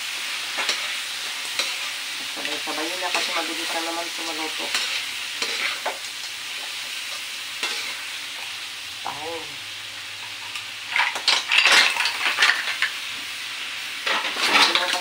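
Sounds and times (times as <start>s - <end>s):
seafood sizzling in butter: 0.0s - 15.0s
spatula stirring in a wok: 0.3s - 9.2s.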